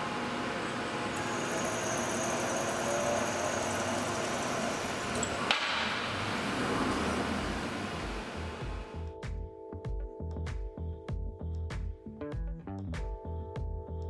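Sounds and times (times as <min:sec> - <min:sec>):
lathe machining noise: 0:00.0 - 0:09.0
thin high whine: 0:00.0 - 0:09.1.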